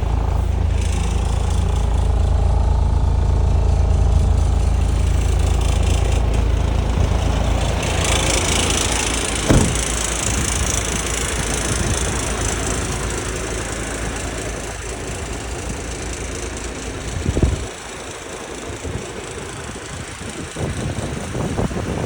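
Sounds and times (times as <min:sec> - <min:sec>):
truck engine idling: 0:00.0 - 0:22.0
short knock: 0:09.4 - 0:10.5.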